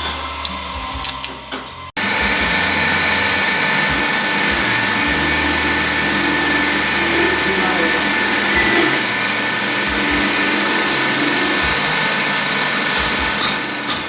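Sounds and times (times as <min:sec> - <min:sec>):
machining noise with a whine: 0:00.0 - 0:14.0
power tool running: 0:00.0 - 0:14.0.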